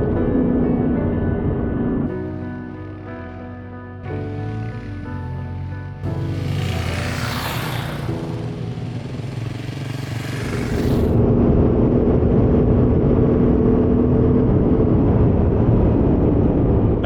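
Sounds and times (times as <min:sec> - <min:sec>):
wind and road noise: 0:00.0 - 0:17.0
motorcycle engine running: 0:02.2 - 0:11.2.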